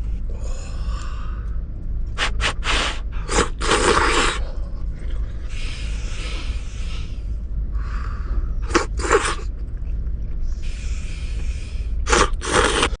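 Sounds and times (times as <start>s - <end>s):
steady low rumble: 0.0s - 13.0s
person slurping noodles: 2.2s - 4.4s, 8.7s - 9.5s, 12.1s - 13.0s.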